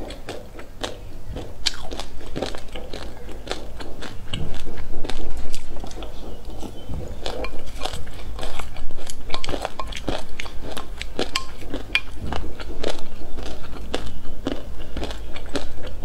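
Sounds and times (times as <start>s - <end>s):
crunching seeds: 0.0s - 16.0s
spoon scooping in glass bowl: 6.5s - 12.2s.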